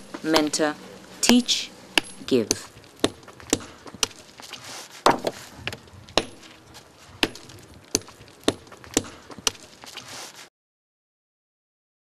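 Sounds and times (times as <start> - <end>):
sharp knocks: 2.0 - 4.2, 5.0 - 6.6, 7.2 - 9.6.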